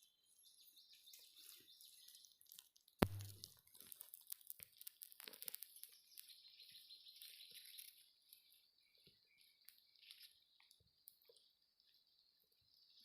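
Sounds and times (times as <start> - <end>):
soft high-pitched chirping: 0.0 - 13.0
small clicks: 2.2 - 6.4.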